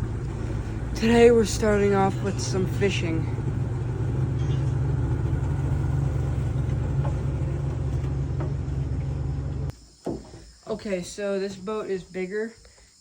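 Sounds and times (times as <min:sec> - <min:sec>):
motorboat engine droning: 0:00.0 - 0:09.7.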